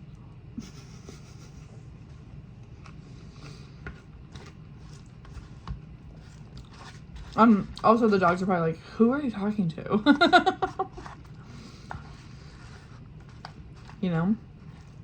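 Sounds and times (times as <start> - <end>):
low room hum: 0.0 - 15.0
faint chewing: 2.6 - 8.0, 10.7 - 15.0.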